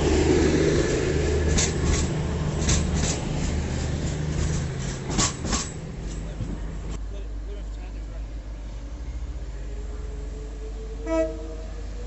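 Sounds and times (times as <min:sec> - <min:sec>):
wheels clicking over rail joints: 0:00.0 - 0:07.0
train engine humming: 0:00.0 - 0:12.0.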